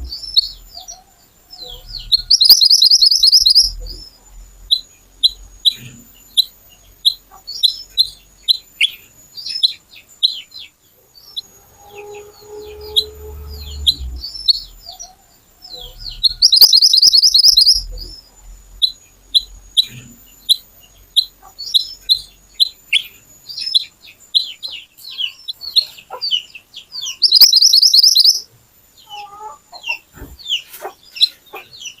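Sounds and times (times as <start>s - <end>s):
background rumble: 0.0s - 2.6s, 3.2s - 8.6s, 10.5s - 22.7s
lower bird call: 0.0s - 26.0s, 27.0s - 30.6s
songbird chirping: 0.0s - 32.0s.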